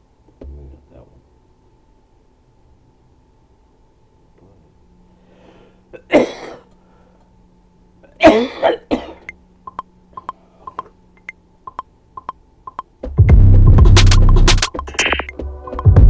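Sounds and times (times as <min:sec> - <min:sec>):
person coughing: 0:05.9 - 0:06.7, 0:08.0 - 0:09.3
sharp ringing ticks: 0:09.3 - 0:12.9.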